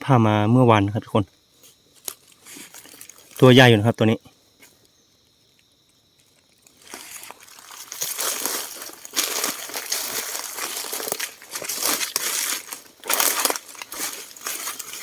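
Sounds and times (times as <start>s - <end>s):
footsteps crunching dry leaves: 6.2s - 15.0s.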